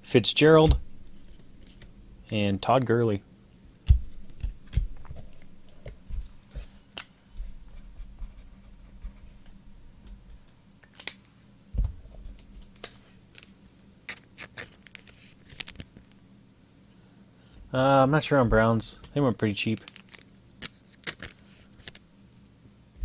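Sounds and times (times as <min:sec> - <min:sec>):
dull thump: 0:00.6 - 0:01.0, 0:03.9 - 0:05.2.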